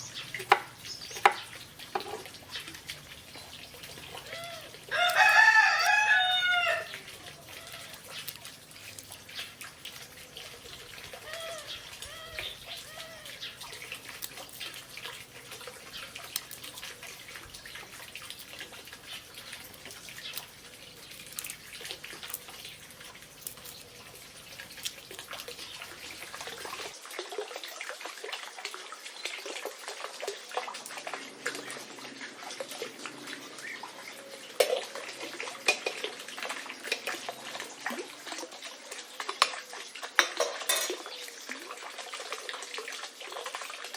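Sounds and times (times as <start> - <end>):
trickling water: 0.0 - 43.9
chicken calls: 4.2 - 8.1, 11.0 - 13.6
rooster crowing: 4.3 - 6.9.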